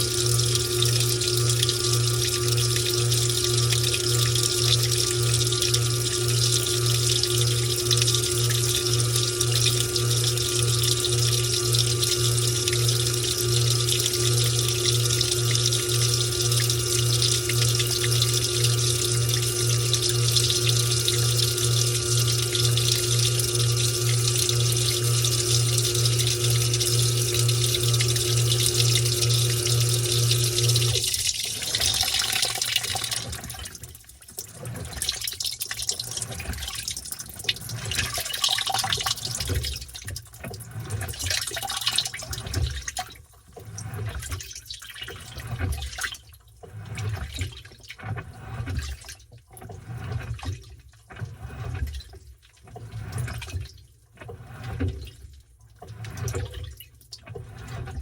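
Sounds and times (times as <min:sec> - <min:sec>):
washing machine hum: 0:00.0 - 0:58.0
water and towels swishing in tub: 0:39.2 - 0:58.0.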